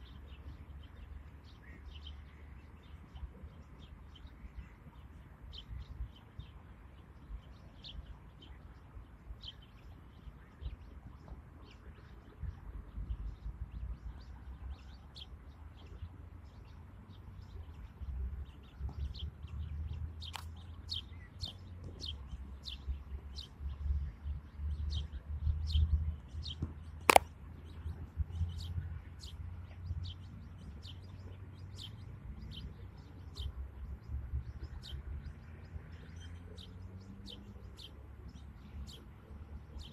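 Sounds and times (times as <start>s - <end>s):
small birds chirping: 0.0s - 39.9s
sharp click: 20.3s - 20.5s, 27.1s - 27.3s.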